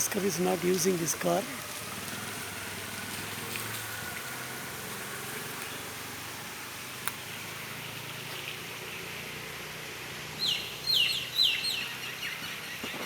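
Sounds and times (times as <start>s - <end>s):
bird calling: 10.4s - 13.0s.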